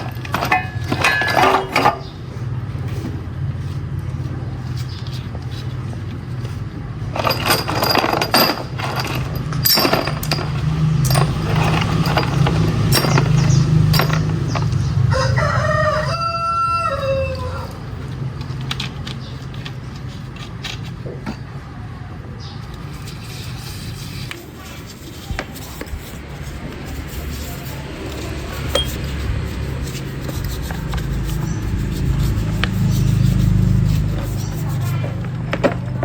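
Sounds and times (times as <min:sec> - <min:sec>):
sharp clicks and knocks: 0:07.2 - 0:14.9
rooster crowing: 0:15.0 - 0:17.8.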